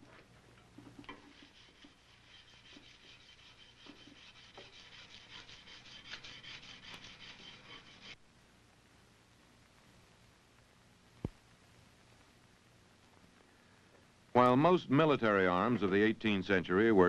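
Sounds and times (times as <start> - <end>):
emery cloth rasping on metal: 0.8 - 8.2.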